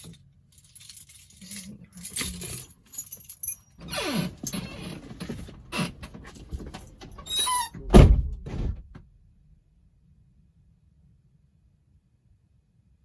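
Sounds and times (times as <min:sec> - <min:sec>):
heavy low thump: 0:07.8 - 0:09.2.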